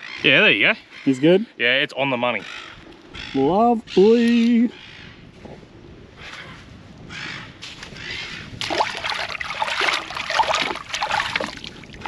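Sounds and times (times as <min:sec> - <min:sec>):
harsh bird calls: 0:02.3 - 0:05.2.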